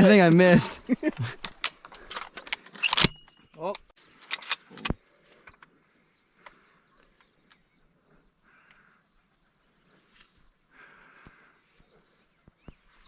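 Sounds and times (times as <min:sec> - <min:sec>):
faint clicks: 0:04.2 - 0:07.9, 0:08.5 - 0:09.0.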